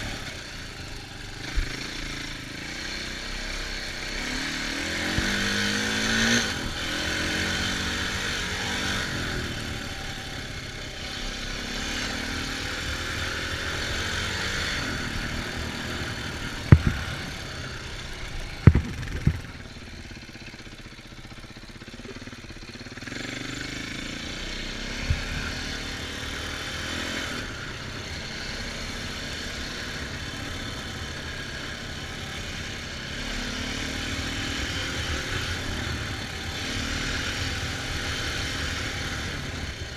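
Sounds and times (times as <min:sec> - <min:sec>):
dirt bike engine revving: 0:00.0 - 0:39.9
sharp knocks: 0:16.7 - 0:17.4, 0:18.6 - 0:19.7
wind noise: 0:16.7 - 0:17.4, 0:18.5 - 0:19.7.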